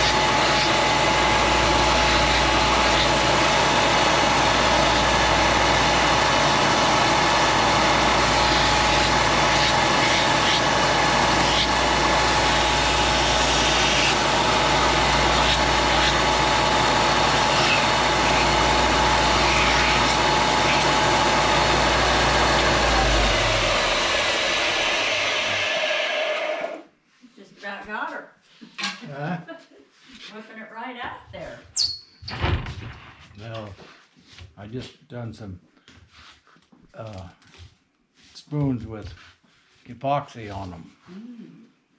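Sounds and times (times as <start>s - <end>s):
power tool motor whining: 0.0s - 26.8s.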